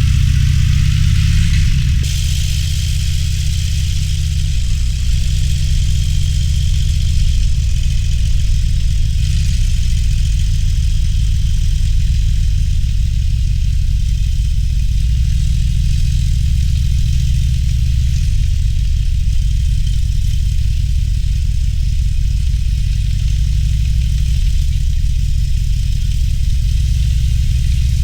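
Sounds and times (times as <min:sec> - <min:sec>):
wind and road noise: 0:00.0 - 0:12.4
motorcycle engine idling: 0:00.0 - 0:28.0.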